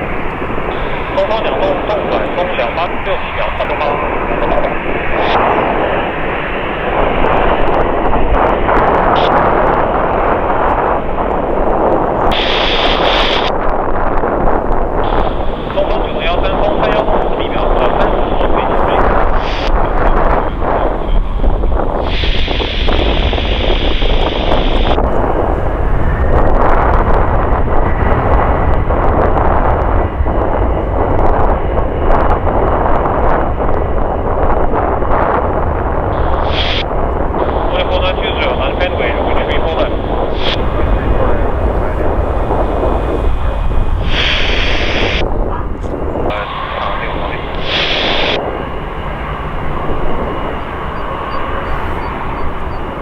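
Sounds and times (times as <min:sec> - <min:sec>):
jet engines roaring: 0:00.0 - 0:53.0
wind buffeting microphone: 0:00.0 - 0:53.0.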